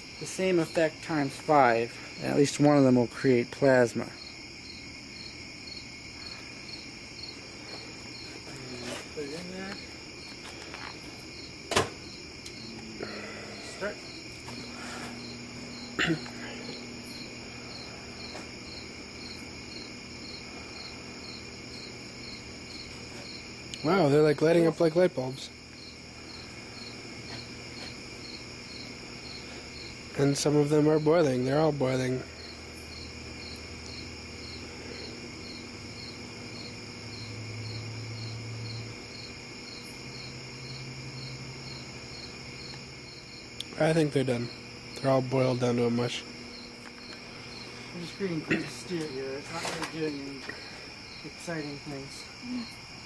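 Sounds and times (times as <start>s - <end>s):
microwave oven humming: 11.2s - 51.2s.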